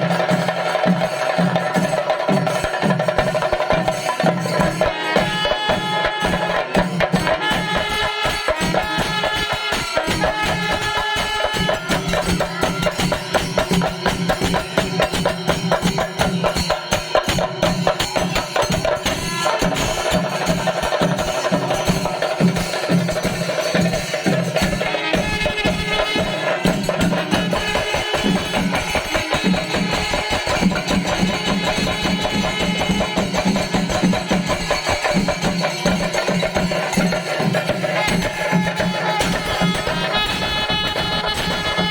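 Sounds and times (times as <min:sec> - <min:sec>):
rapid percussion ensemble drumming: 0:00.0 - 0:41.9.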